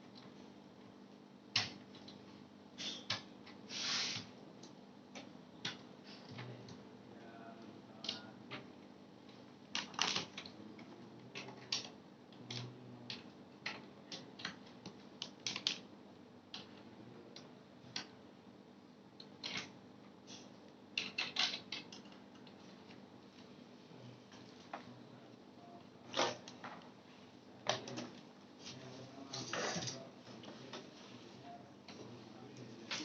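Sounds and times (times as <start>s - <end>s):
clicks and taps of small parts: 19.2s - 19.7s, 21.0s - 23.0s.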